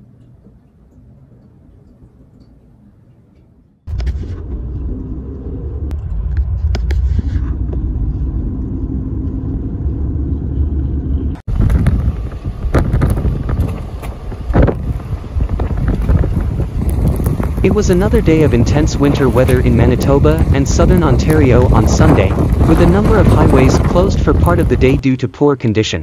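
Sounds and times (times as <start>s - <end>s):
loud low rumble: 3.9s - 25.0s
wind buffeting microphone: 3.9s - 25.0s.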